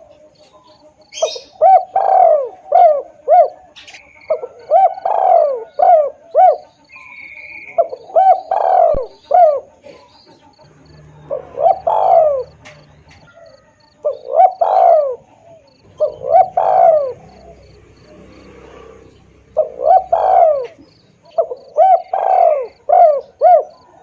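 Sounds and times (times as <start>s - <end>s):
dove cooing: 0.0s - 24.0s
faint high chirping: 0.0s - 24.0s.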